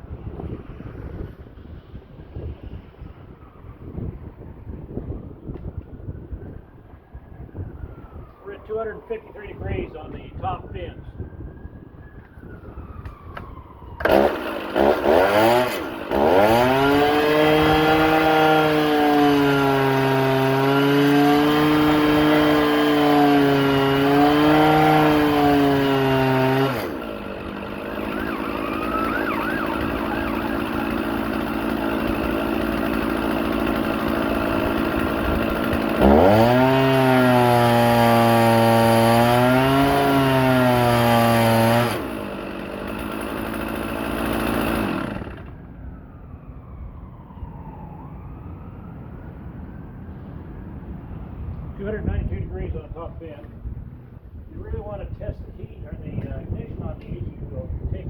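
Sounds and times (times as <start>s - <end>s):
chainsaw at full throttle: 14.0s - 45.6s.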